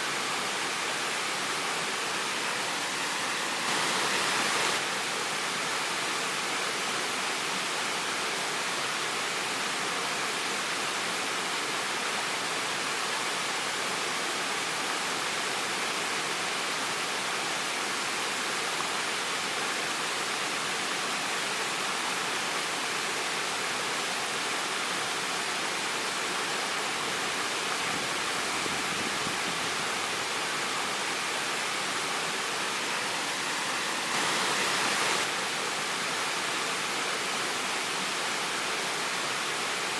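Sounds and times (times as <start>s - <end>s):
waterfall rushing: 0.0s - 7.4s, 24.4s - 39.9s.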